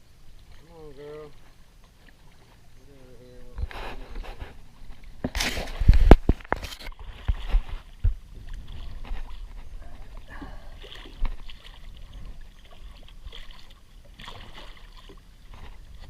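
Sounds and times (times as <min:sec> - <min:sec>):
water sloshing against boat: 0:00.0 - 0:16.0
wind rumbling on microphone: 0:03.4 - 0:13.6, 0:15.1 - 0:16.0.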